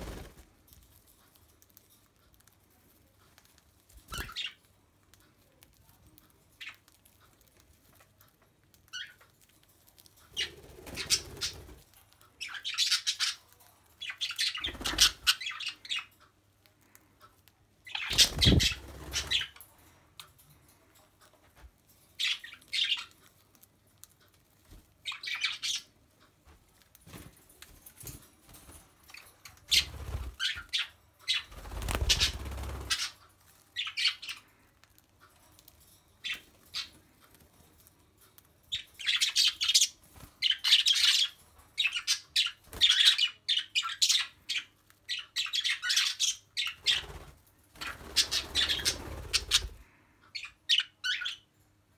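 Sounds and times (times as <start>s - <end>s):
birds chirping and squawking: 3.8s - 4.7s, 8.8s - 20.5s, 21.9s - 26.4s, 27.0s - 37.7s, 38.3s - 51.6s.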